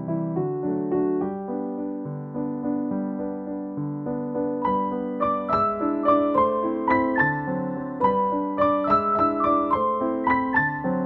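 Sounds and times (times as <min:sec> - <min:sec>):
gentle electric piano music: 0:00.0 - 0:11.0.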